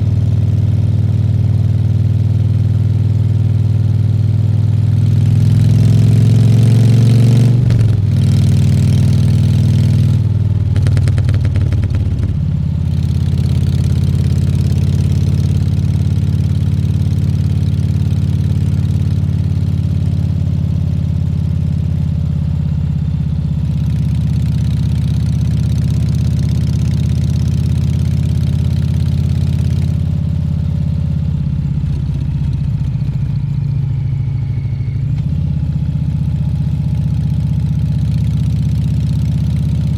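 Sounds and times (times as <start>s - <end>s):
motorcycle engine running: 0.0s - 39.9s
rapid engine clatter: 10.6s - 17.6s, 31.6s - 33.8s.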